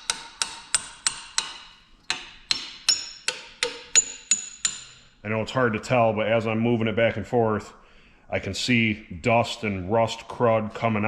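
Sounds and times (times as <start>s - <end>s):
hammer tapping on metal: 0.0s - 5.1s.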